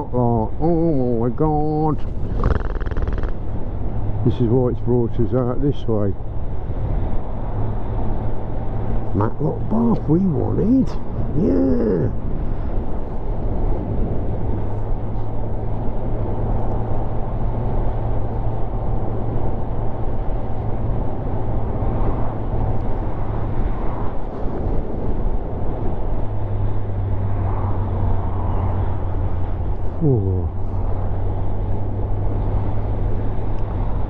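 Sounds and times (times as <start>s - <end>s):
wind rushing: 2.0s - 3.9s.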